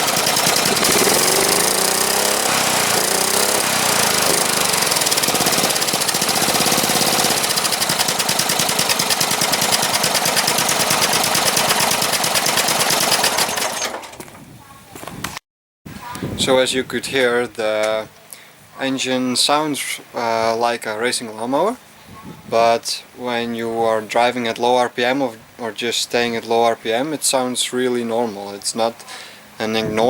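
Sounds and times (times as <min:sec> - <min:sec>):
lawn mower engine rasping: 0:00.0 - 0:14.4.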